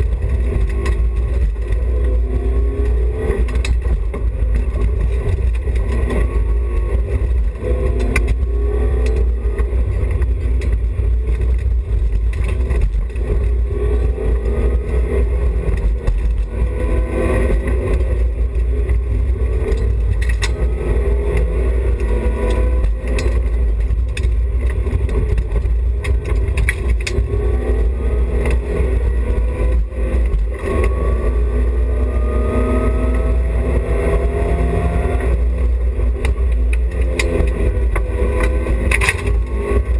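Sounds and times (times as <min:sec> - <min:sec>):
rally car engine accelerating hard: 0:00.0 - 0:39.9
sharp knocks and clicks: 0:02.8 - 0:13.6, 0:17.4 - 0:31.0, 0:35.2 - 0:39.9
loud low drone: 0:13.4 - 0:39.9.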